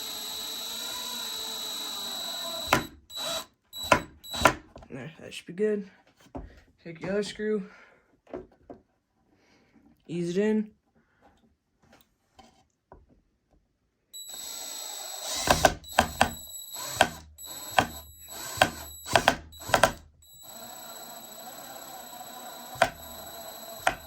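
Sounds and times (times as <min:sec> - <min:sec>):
drill motor whining: 0:00.0 - 0:04.6, 0:14.2 - 0:24.0.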